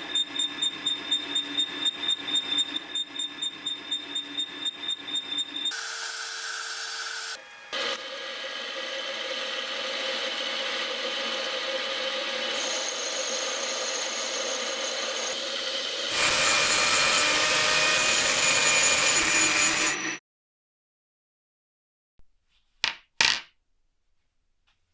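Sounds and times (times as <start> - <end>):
power tool running: 5.7 - 20.2.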